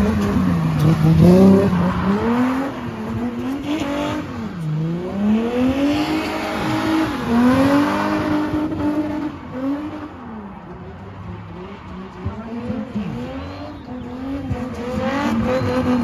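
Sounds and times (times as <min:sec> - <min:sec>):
car engine revving hard: 0:00.0 - 0:10.1, 0:11.5 - 0:16.0
tyres spinning with squeal: 0:12.7 - 0:16.0.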